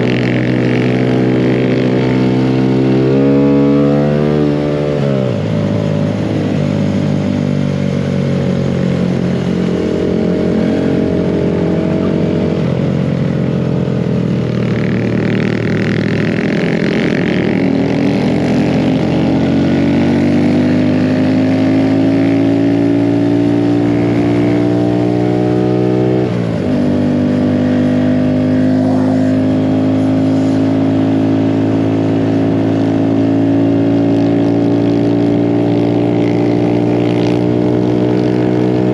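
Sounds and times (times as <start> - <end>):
mini bike engine running: 28.8 - 29.2.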